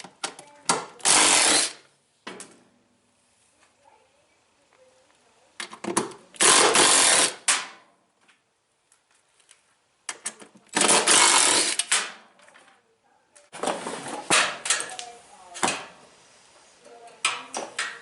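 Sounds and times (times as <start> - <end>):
power tool running: 1.0 - 1.8, 6.4 - 7.4, 10.8 - 11.8.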